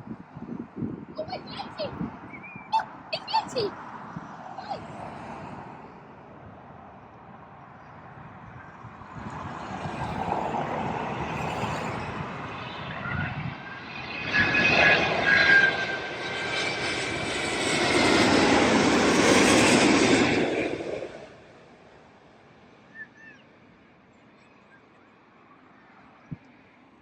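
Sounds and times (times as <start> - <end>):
jet engines roaring: 8.3 - 21.9.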